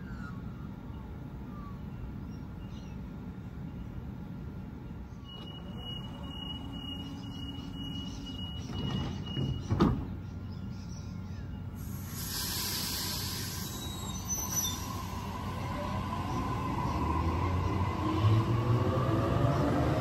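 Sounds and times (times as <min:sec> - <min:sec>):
train rumble: 0:00.0 - 0:20.0
door warning tone: 0:05.2 - 0:09.8
train motor whine: 0:05.2 - 0:09.8, 0:11.8 - 0:20.0
train doors shutting thud: 0:08.5 - 0:10.2
air hiss: 0:11.8 - 0:15.7.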